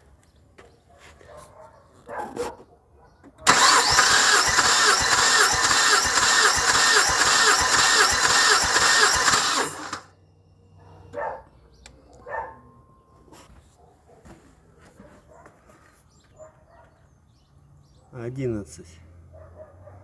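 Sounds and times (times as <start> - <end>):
car engine cranking on starter: 3.5 - 10.1.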